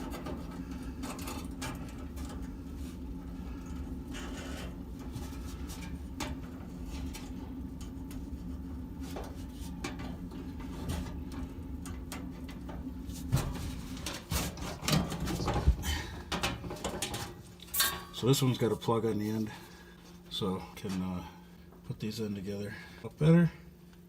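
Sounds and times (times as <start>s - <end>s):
light clicks and rattles of wires: 0.0s - 18.5s
steady low hum: 0.0s - 24.0s.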